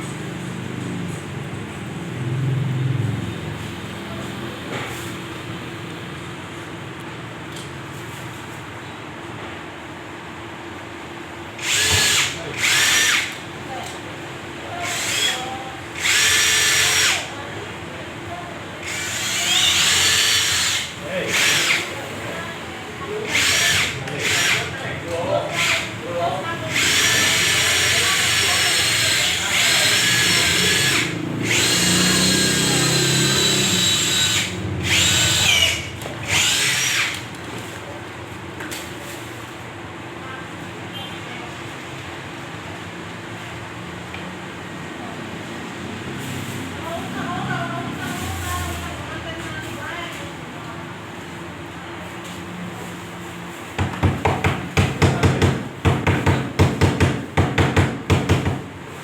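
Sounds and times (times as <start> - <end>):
power drill whining: 11.6 - 13.4, 14.8 - 17.3, 18.8 - 21.9, 23.2 - 24.8, 25.5 - 25.9, 26.7 - 37.2.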